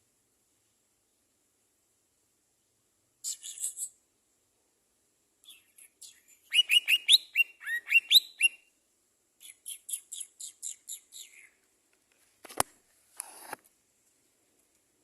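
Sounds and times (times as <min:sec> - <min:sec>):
small songbird singing: 0:03.2 - 0:04.0, 0:05.4 - 0:08.8, 0:09.4 - 0:11.6.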